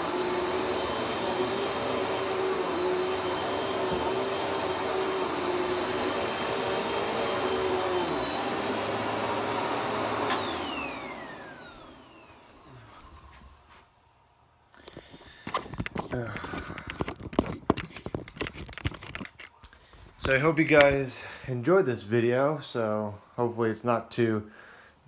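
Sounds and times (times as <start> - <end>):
vacuum cleaner running: 0.0 - 13.8, 15.1 - 19.3
vacuum switch click: 10.2 - 10.7.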